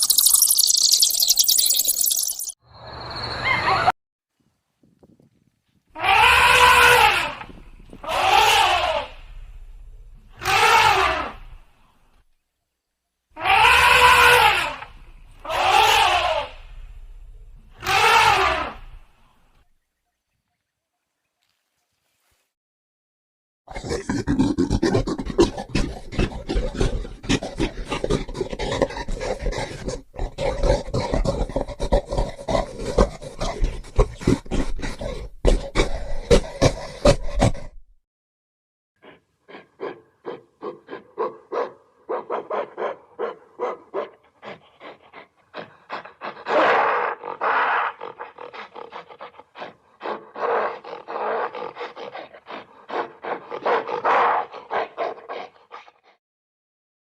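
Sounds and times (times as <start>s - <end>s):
animal growling and roaring: 13.4s - 19.0s, 23.7s - 37.9s, 45.6s - 55.7s.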